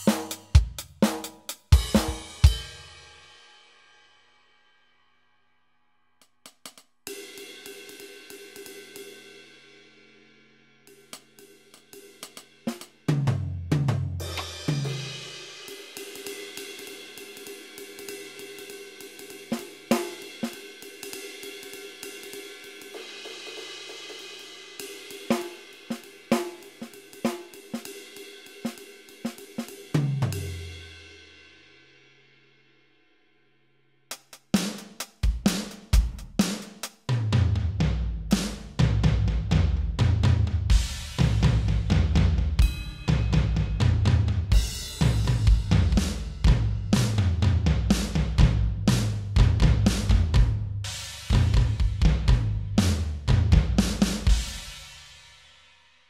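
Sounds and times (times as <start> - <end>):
hi-hat and snare hits: 0.0 - 3.8, 6.2 - 9.4, 10.2 - 31.6, 34.1 - 55.8
cymbal ringing: 42.6 - 44.0.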